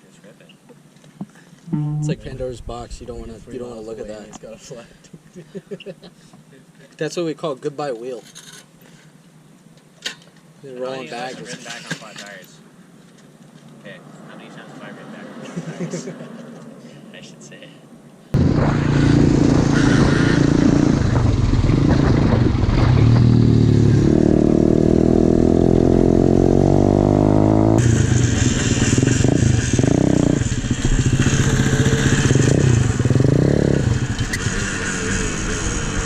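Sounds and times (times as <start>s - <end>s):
small motorbike engine revving: 18.4s - 36.0s.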